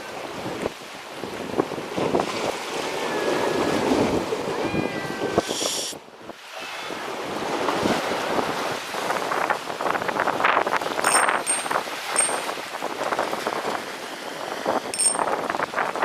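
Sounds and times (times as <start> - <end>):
sea waves washing on shore: 0.0 - 16.0
wind buffeting microphone: 7.1 - 16.0.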